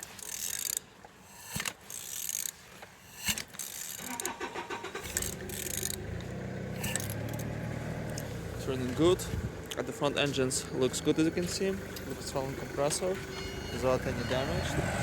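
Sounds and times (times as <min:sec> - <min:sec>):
engine whirring as it rotates: 0:03.1 - 0:15.0.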